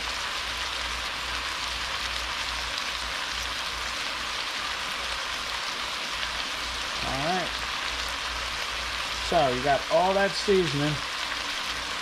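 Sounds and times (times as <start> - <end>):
stir fry sizzling in pan: 0.0 - 12.0.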